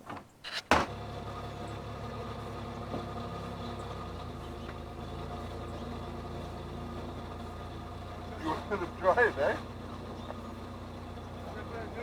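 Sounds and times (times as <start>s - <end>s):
car engine idling: 0.8s - 12.0s.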